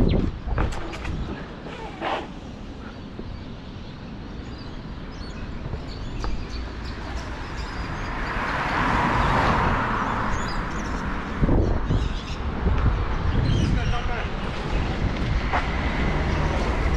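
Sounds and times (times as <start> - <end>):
wind on microphone: 0.0 - 2.5, 5.4 - 16.9
vehicle passing on road: 6.3 - 13.4, 14.1 - 16.9.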